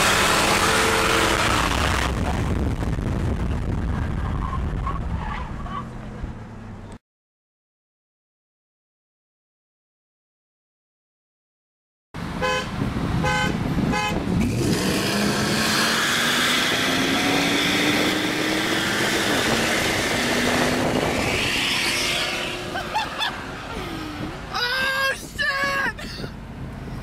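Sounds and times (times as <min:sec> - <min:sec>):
horn toots: 0:00.0 - 0:01.9, 0:12.4 - 0:15.0
pickup truck engine accelerating: 0:12.8 - 0:24.5
voices: 0:23.7 - 0:26.2.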